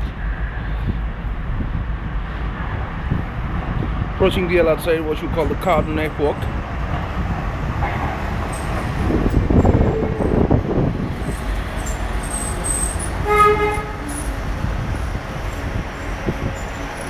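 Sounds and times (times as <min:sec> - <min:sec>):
train wheels rumbling on track: 0:00.0 - 0:17.0
train horn toot: 0:12.9 - 0:14.3.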